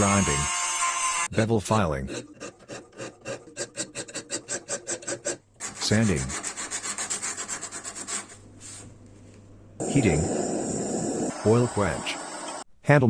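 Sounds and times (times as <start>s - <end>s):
hand file rasping on steel: 0.0s - 8.4s
sandpaper rubbing on steel: 2.1s - 8.8s.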